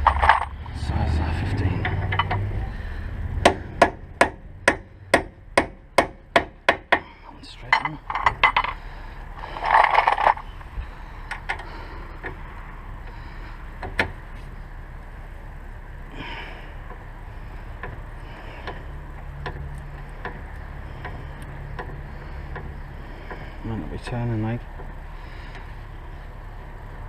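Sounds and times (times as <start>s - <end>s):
low steady hum: 0.0s - 27.0s
light metallic clicks and knocks: 1.8s - 2.6s, 6.7s - 8.8s, 18.6s - 23.5s.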